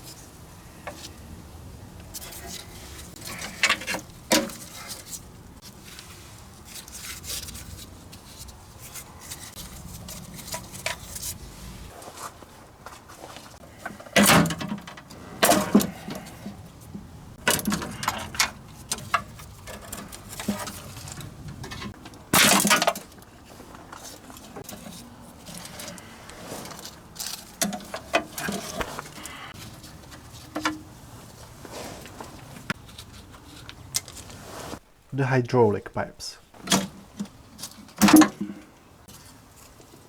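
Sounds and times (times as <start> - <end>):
metallic clanks of hand tools: 17.4 - 23.2, 36.6 - 38.7.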